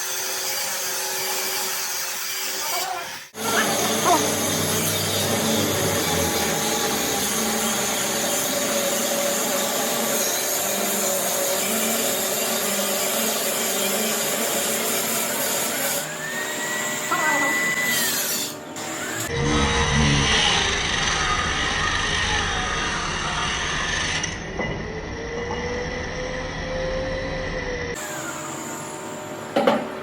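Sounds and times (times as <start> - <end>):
power tool running: 0.0 - 24.4, 27.6 - 30.0
rising and falling whine: 3.4 - 8.2.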